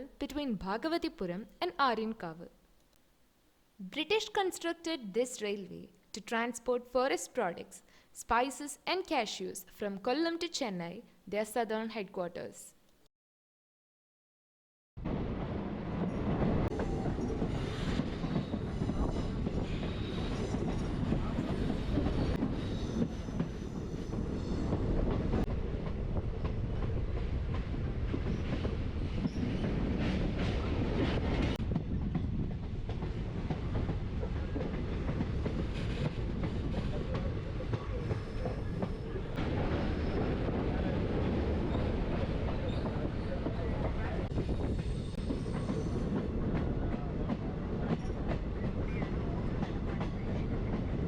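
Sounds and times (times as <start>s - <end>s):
train wheels rumbling on rails: 15.4s - 51.0s
train rattling and clatter: 15.9s - 51.0s.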